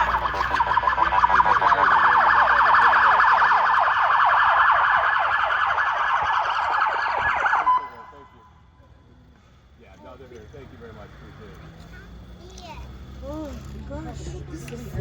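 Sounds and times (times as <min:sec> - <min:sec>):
police siren warbling: 0:00.0 - 0:08.4.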